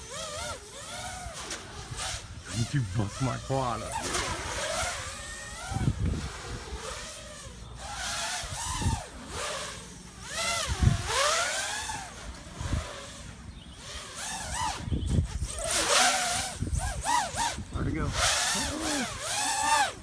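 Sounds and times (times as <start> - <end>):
drone propeller whine: 0.0 - 12.6.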